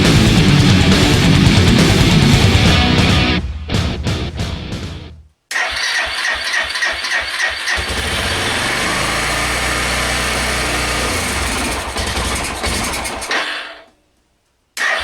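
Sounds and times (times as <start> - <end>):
music: 0.0 - 5.3
motorcycle engine cranking: 5.6 - 13.5
motorcycle engine running: 7.8 - 13.3.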